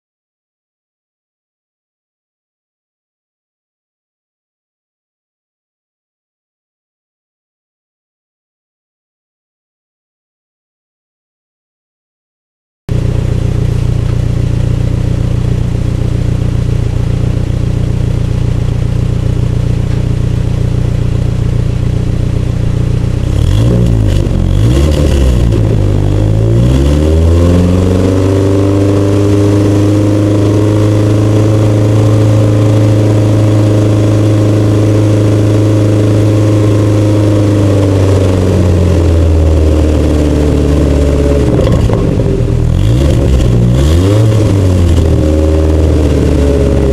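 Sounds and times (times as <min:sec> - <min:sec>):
car engine idling and revving: 0:12.9 - 0:46.9.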